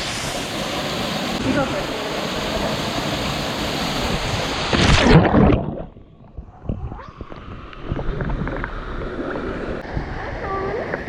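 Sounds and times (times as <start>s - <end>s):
waterfall roaring: 0.0s - 4.7s
loud splash: 0.0s - 6.0s.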